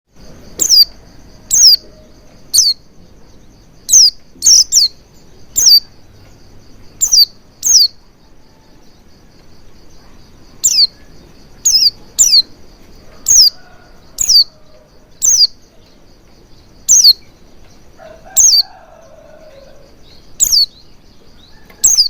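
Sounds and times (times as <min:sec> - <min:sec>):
bird sharp high calls: 0:00.6 - 0:01.9, 0:02.5 - 0:02.8, 0:03.9 - 0:06.0, 0:07.0 - 0:08.0, 0:10.6 - 0:12.5, 0:13.2 - 0:14.6, 0:15.2 - 0:15.6, 0:16.8 - 0:17.3, 0:18.0 - 0:20.9, 0:21.5 - 0:22.0.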